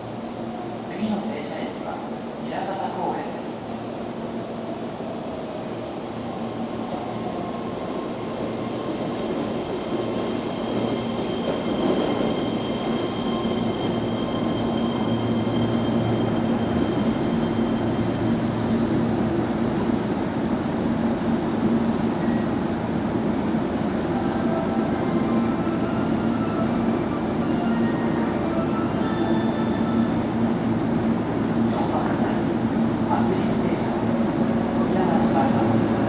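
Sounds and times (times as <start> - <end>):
electric train pulling in: 4.0 - 36.0
steady high tone: 24.0 - 30.5.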